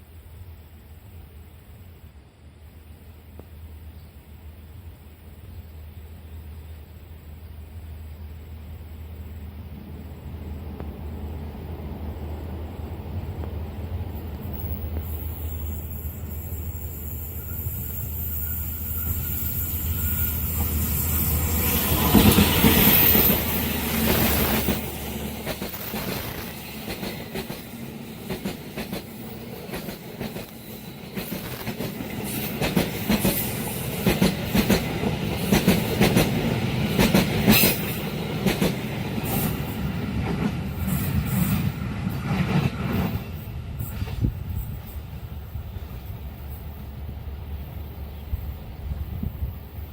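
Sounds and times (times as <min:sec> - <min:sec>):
diesel locomotive engine passing: 0:03.8 - 0:49.9
clickety-clack of train wheels: 0:17.4 - 0:49.9.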